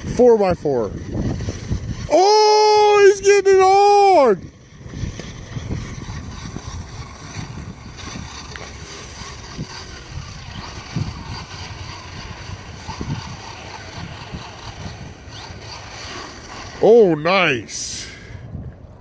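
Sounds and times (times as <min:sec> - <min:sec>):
rc truck hiss on ice: 0:05.1 - 0:16.9.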